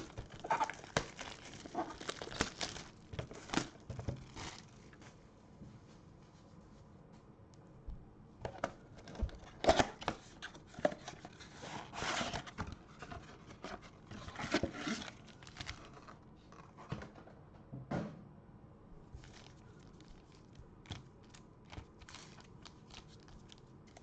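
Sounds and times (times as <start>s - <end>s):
packaging tearing and crinkling: 0.0s - 4.8s, 14.1s - 16.2s, 19.2s - 24.0s.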